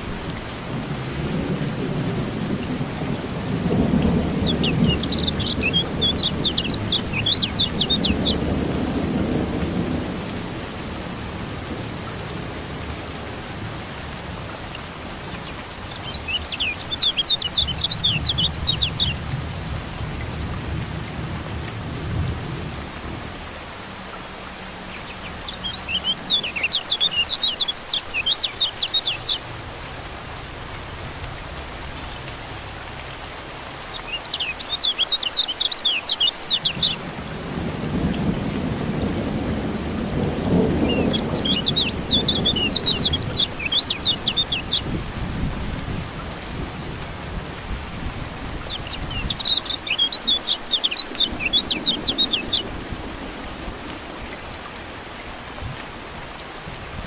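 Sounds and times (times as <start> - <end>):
thunder rumble: 0.0 - 33.4, 36.4 - 54.7
steady rain: 0.0 - 57.0
bird high rapid chirping: 4.2 - 8.4, 15.9 - 19.2, 25.0 - 29.4, 33.6 - 37.0, 40.9 - 44.9, 48.4 - 52.6.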